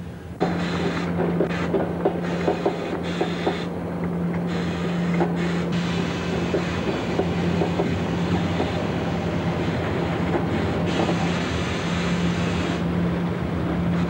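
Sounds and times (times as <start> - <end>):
wheels rushing on rails: 0.0 - 14.0
wheels knocking over rail joints: 0.4 - 4.4.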